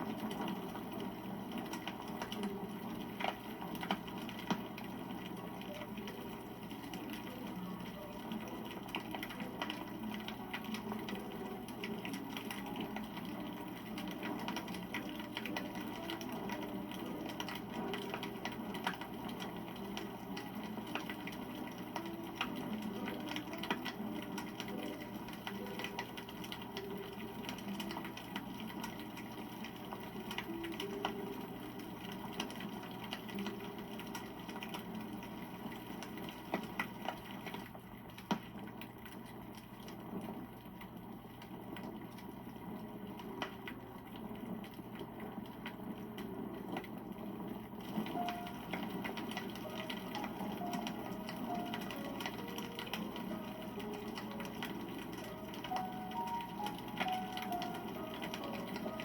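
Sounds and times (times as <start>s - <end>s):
campfire crackling: 0.0s - 59.0s.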